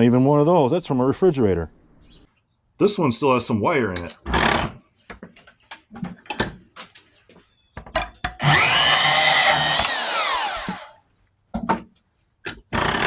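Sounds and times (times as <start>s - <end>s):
bandsaw whining: 8.4s - 11.0s, 12.7s - 13.0s.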